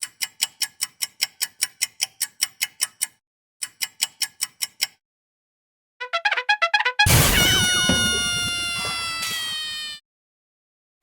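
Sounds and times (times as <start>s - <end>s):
fast clock-like ticking: 0.0s - 5.0s.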